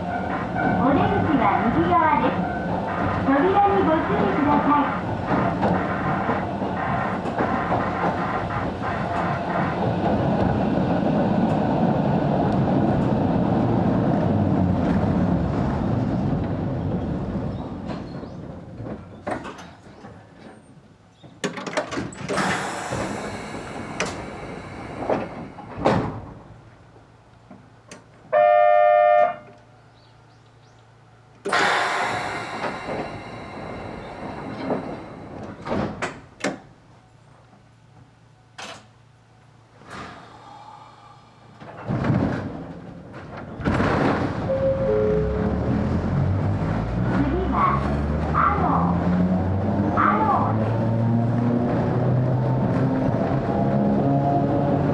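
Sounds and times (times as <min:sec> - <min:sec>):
train clunks: 0:00.0 - 0:13.8, 0:14.6 - 0:28.4, 0:31.2 - 0:48.4
air hiss: 0:22.3 - 0:26.4, 0:31.5 - 0:35.7
electric train running: 0:22.3 - 0:26.7, 0:31.4 - 0:36.2.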